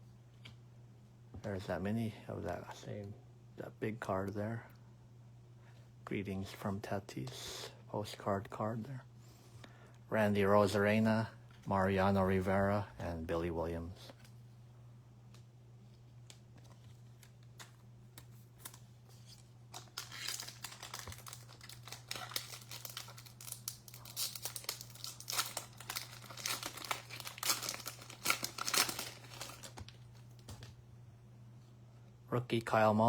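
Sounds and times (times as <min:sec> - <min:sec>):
low steady hum: 0:00.0 - 0:33.0
wrapper tearing and crinkling: 0:18.6 - 0:30.7.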